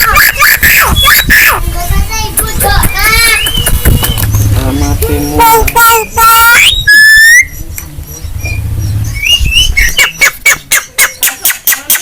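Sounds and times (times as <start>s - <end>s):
bird whistles and squawky calls: 0.0s - 1.6s, 2.8s - 11.8s
sharp clicking bird chatter: 2.2s - 6.8s, 9.2s - 12.0s.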